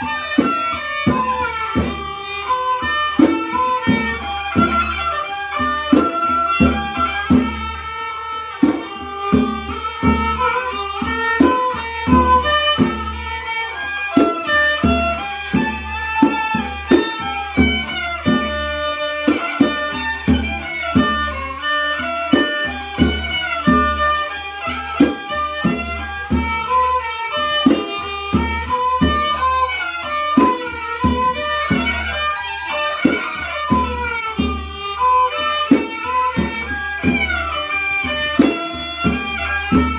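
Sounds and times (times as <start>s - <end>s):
hand drum beat: 0.0s - 7.8s, 8.6s - 39.9s
bowed fiddle melody: 0.0s - 39.9s.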